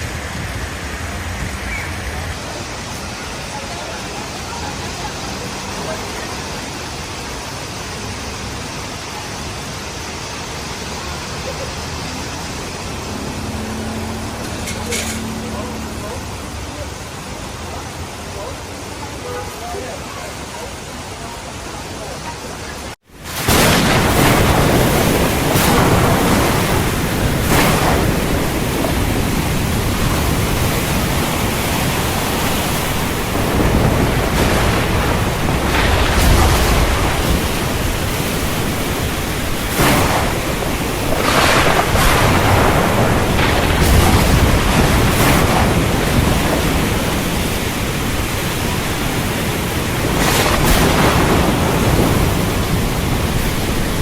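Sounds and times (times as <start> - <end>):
wind gusting on microphone: 0.0 - 7.6, 23.2 - 54.0
heavy rain pouring: 0.0 - 54.0
deep rumbles: 23.4 - 54.0.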